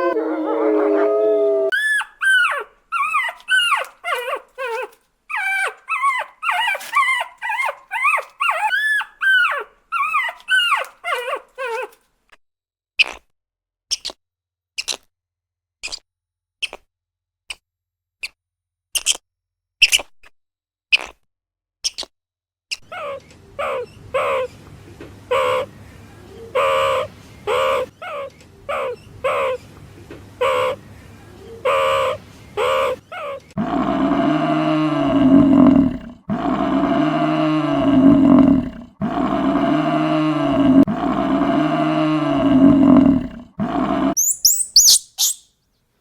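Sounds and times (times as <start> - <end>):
long rising and falling calls: 44.2 - 45.4
short quick animal calls: 44.2 - 45.4.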